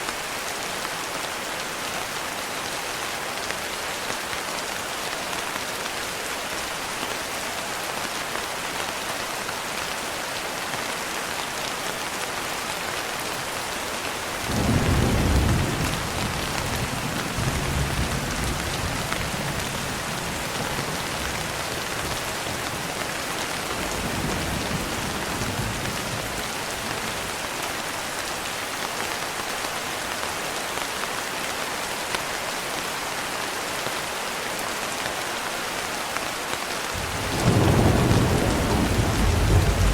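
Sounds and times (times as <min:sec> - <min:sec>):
thunder rumbling: 0:14.5 - 0:19.7, 0:37.0 - 0:39.9
rain pattering on a window: 0:35.0 - 0:39.9.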